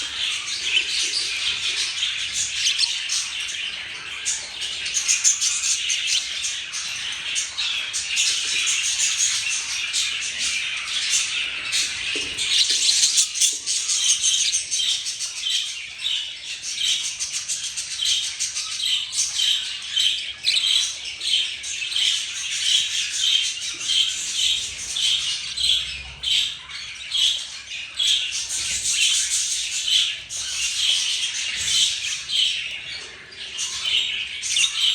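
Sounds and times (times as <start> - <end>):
budgerigars chirping and squawking: 0.0 - 34.9.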